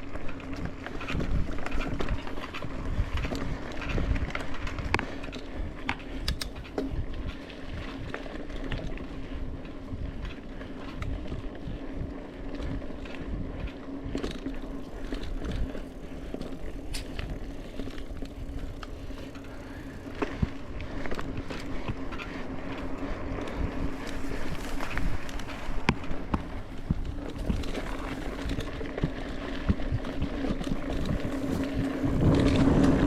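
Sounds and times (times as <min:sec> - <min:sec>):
bike clicks and rattles: 0:00.0 - 0:33.0
bike tyres rumbling on dirt: 0:00.0 - 0:33.0
wind: 0:00.0 - 0:33.0
steady low hum: 0:14.4 - 0:33.0.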